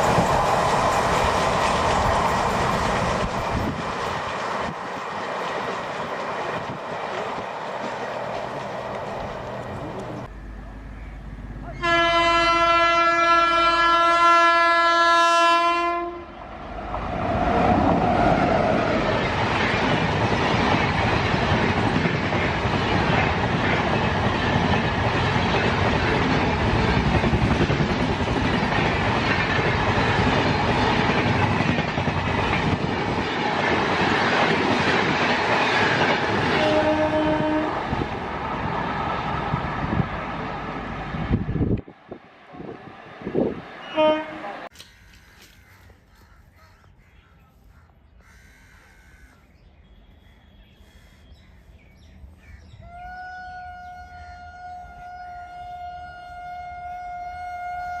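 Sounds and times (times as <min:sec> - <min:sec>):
wheels clacking on rail joints: 0:00.0 - 0:10.3
train rushing past: 0:00.0 - 0:14.6, 0:15.3 - 0:44.7
train horn blast: 0:11.7 - 0:16.4, 0:36.4 - 0:38.1, 0:43.8 - 0:44.7, 0:52.8 - 0:58.0.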